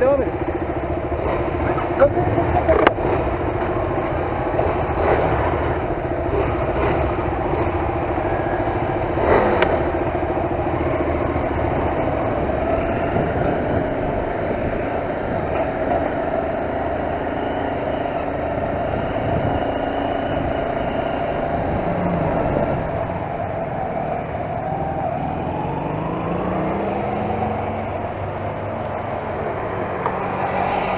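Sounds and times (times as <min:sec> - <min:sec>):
motorcycle engine running: 0:00.0 - 0:30.9
wind noise rumble: 0:07.2 - 0:16.2, 0:18.6 - 0:24.5.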